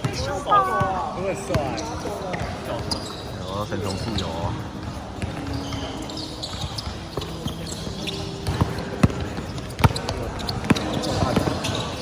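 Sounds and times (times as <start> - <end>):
background chatter: 0.0 - 12.0
shoe squeaks: 0.0 - 12.0
basketball bouncing: 3.9 - 11.9.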